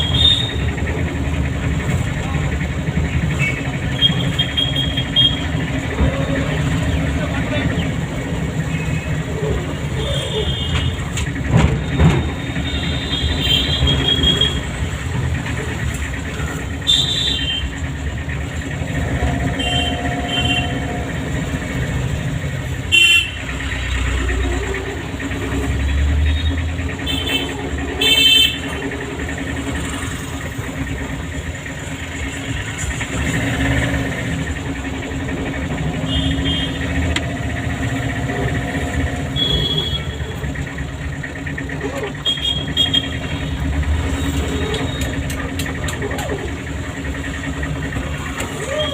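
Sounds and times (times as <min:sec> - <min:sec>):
car horns beeping: 0:00.0 - 0:00.8, 0:03.3 - 0:05.9, 0:09.8 - 0:15.1, 0:16.6 - 0:18.0, 0:18.8 - 0:21.5, 0:22.7 - 0:23.7, 0:26.2 - 0:28.9, 0:35.8 - 0:40.7, 0:42.1 - 0:46.0
car engine and tyres driving: 0:00.0 - 0:48.9.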